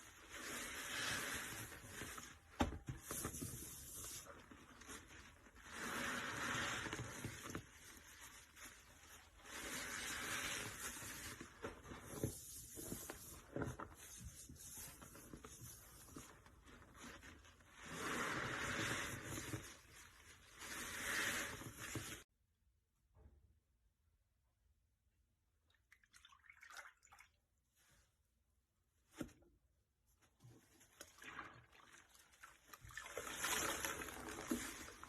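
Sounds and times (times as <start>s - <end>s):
soapy sponge squeezed: 0.0s - 22.3s, 30.6s - 35.0s.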